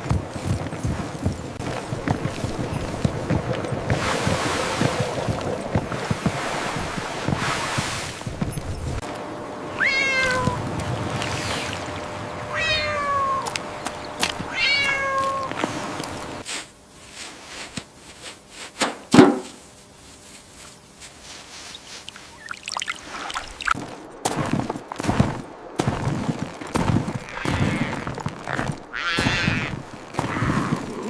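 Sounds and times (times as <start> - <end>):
meow-like animal calls: 9.8 - 10.6, 12.5 - 13.6, 14.4 - 15.6, 27.2 - 31.0.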